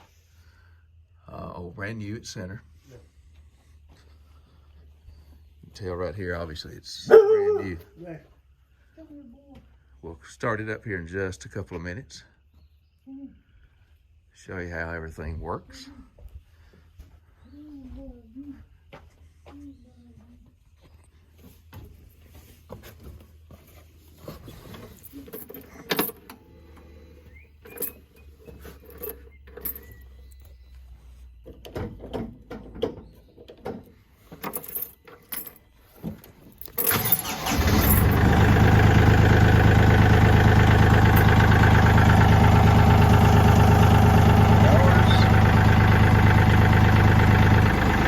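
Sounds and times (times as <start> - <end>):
diesel tractor engine starting: 36.8 - 48.0.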